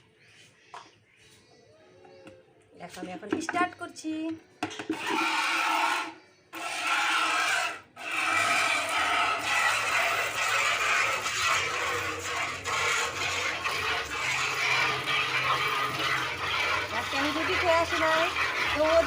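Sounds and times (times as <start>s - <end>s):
milk squirting into a bucket: 4.9s - 19.0s.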